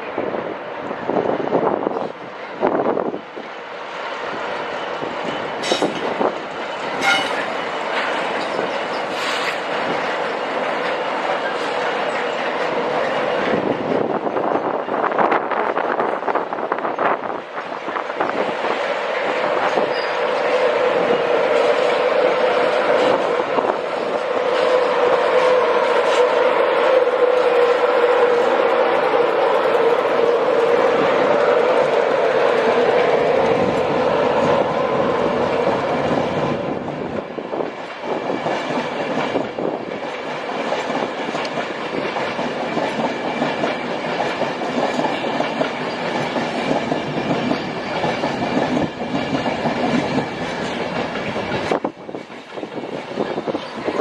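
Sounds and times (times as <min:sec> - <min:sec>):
train rushing on rails: 0:00.0 - 0:54.0
wheel squeals and clicks: 0:19.8 - 0:20.4.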